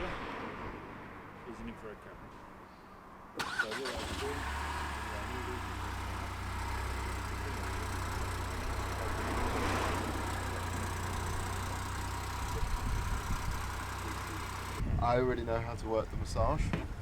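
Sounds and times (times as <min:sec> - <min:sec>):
car engine idling: 0:03.4 - 0:14.8.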